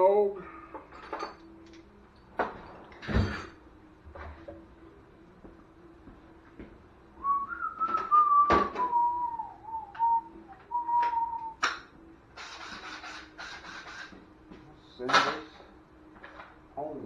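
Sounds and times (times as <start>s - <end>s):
person whistling a tune: 7.2s - 11.7s.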